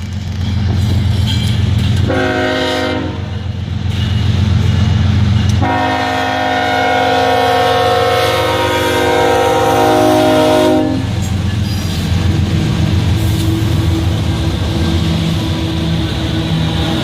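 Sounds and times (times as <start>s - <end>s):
passing train rumble: 0.0s - 17.0s
train horn blast: 2.0s - 3.4s, 5.6s - 11.2s.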